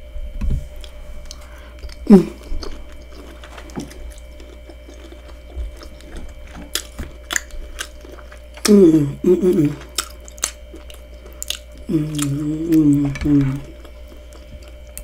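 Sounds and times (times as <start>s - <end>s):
person chewing: 0.7s - 15.0s
person humming mm: 2.0s - 2.8s, 8.6s - 9.9s, 11.8s - 13.8s.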